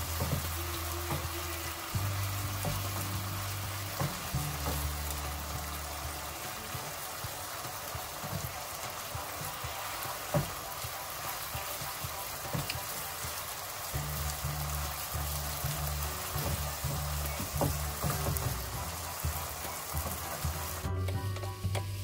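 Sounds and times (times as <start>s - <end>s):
wooden spoon knocking a pan: 0.0s - 1.4s, 2.5s - 3.3s, 3.9s - 5.0s, 8.0s - 13.4s, 15.5s - 21.8s
chicken sizzling in a pan: 0.0s - 22.0s.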